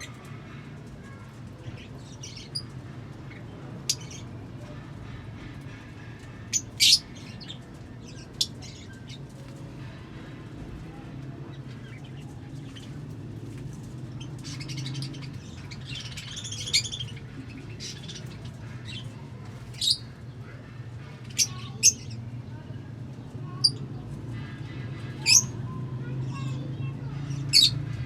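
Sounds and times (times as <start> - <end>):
lovebirds chirping and squawking: 0.0 - 22.6, 23.2 - 28.0.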